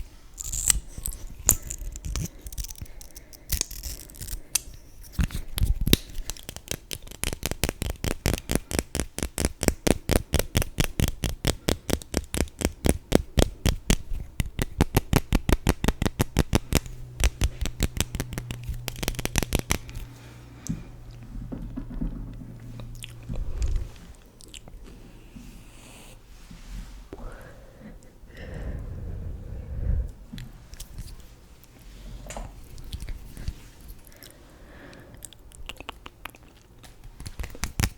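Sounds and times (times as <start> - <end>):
rapid even taps: 7.6 - 20.0.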